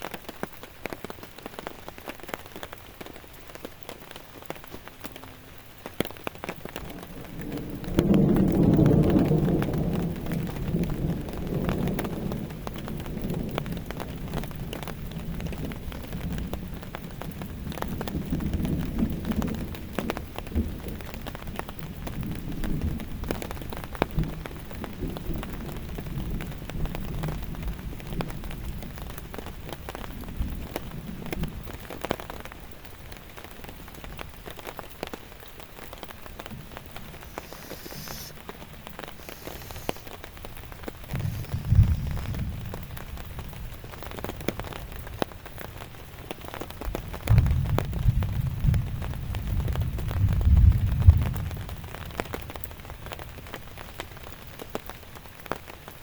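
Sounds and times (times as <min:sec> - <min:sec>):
raindrops tapping on surface: 0:00.0 - 0:56.0
steady rain falling: 0:00.0 - 0:56.0
low thunder rumble: 0:06.5 - 0:32.5, 0:36.2 - 0:53.7.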